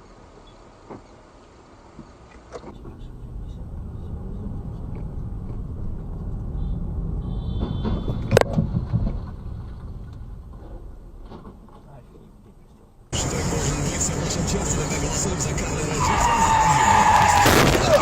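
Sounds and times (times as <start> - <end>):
vehicle rumble: 0.0 - 18.0.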